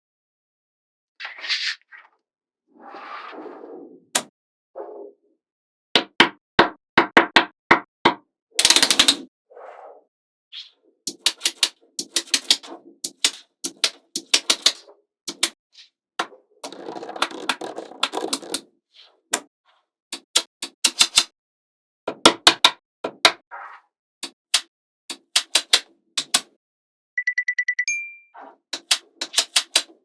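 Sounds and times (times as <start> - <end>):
magnetic balls clicking together: 11.1 - 15.6, 16.6 - 18.6, 28.8 - 29.9
balls rattling against each other: 16.2 - 18.6.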